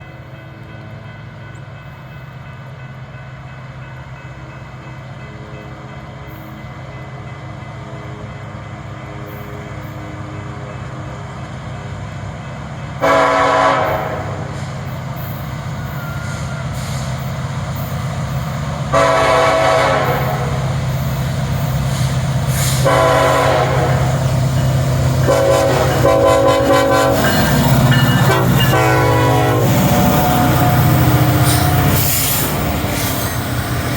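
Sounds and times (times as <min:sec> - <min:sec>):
diesel locomotive engine drone: 0:00.0 - 0:33.9
train air horn blasts: 0:13.0 - 0:14.7, 0:18.9 - 0:20.7, 0:21.9 - 0:33.2.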